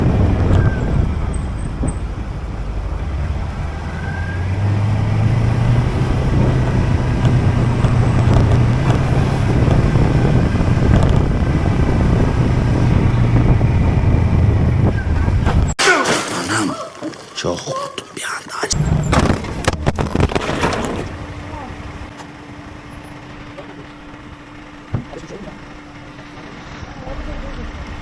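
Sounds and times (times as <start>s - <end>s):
road and wind noise: 0.0s - 15.8s, 18.2s - 28.0s
motorcycle engine running: 5.6s - 15.7s.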